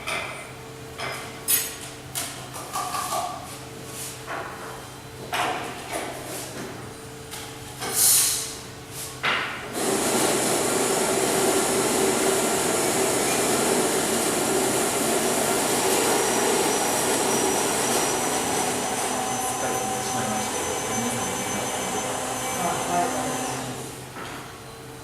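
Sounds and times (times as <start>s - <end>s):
electric machine whirring: 9.8s - 24.0s.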